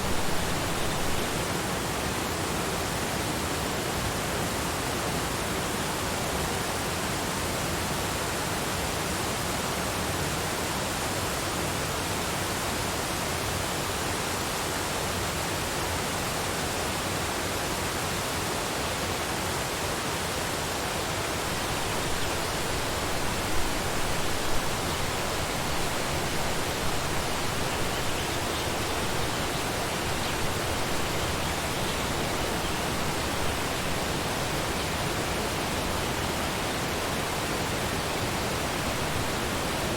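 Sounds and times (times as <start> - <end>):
waterfall rushing: 0.0 - 2.6, 21.0 - 39.9.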